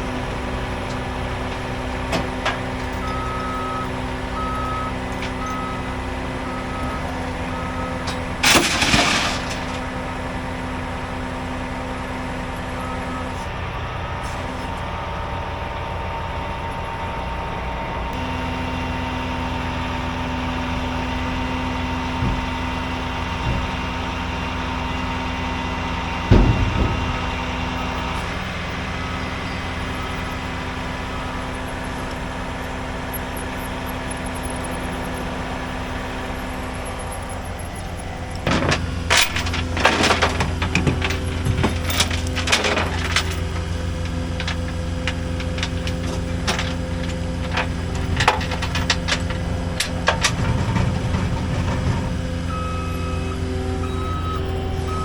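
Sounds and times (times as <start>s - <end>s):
truck engine running: 0.0s - 55.0s
metallic clanks and knocks: 0.9s - 4.1s, 8.0s - 10.1s, 22.1s - 29.0s, 38.4s - 52.6s.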